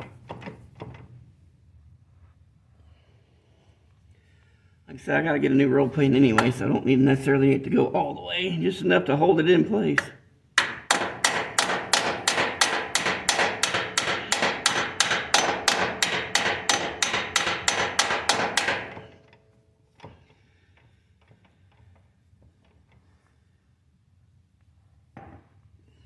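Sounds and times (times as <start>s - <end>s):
hammer striking steel: 10.0s - 19.2s.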